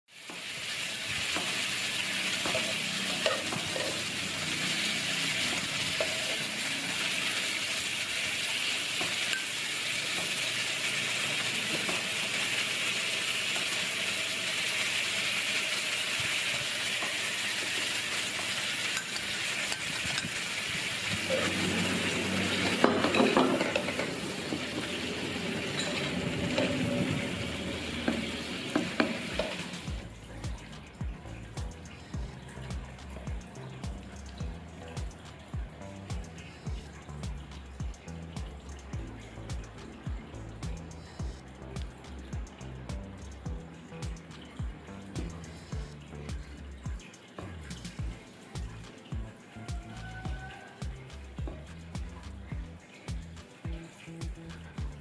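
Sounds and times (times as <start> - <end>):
meat sizzling in a frying pan: 0.1 - 30.1
spatula scraping a pan: 1.2 - 7.2.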